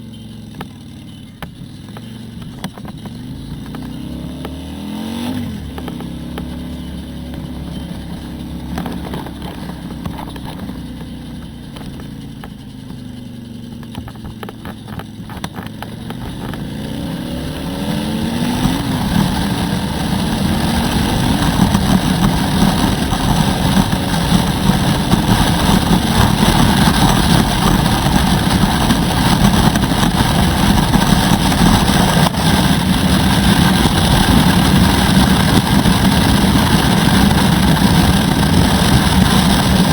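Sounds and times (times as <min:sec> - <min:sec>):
motorcycle engine: 0:00.0 - 0:39.9
wind rush over microphone: 0:13.9 - 0:39.9.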